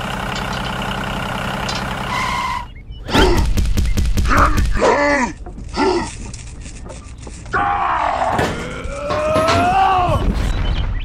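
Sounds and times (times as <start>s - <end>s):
engine running: 0.0s - 2.8s
person groaning and shouting: 7.6s - 10.2s.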